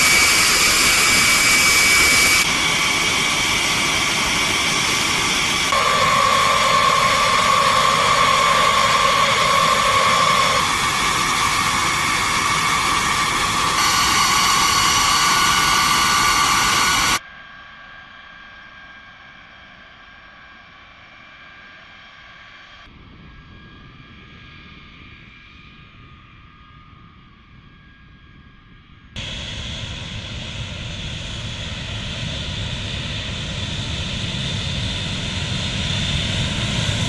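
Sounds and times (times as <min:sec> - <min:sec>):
jet engines whining: 0:00.0 - 0:17.2, 0:29.2 - 0:37.0
distant engine whine: 0:00.0 - 0:20.8.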